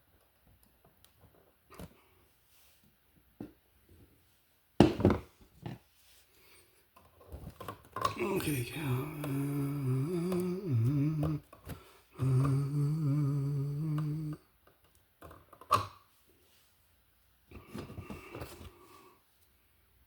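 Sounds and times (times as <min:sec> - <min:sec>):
man humming low notes: 0:08.2 - 0:11.4, 0:12.2 - 0:14.4.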